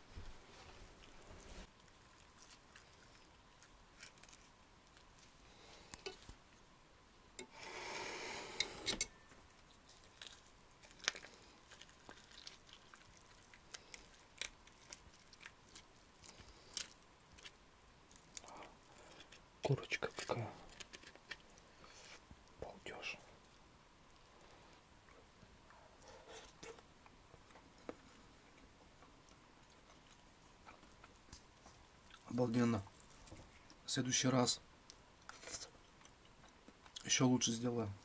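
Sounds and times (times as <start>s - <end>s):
soft chewing: 0.0s - 6.7s, 8.6s - 33.9s, 34.8s - 37.2s
rustling tearing noise: 3.9s - 5.4s, 9.6s - 19.4s, 20.0s - 21.6s.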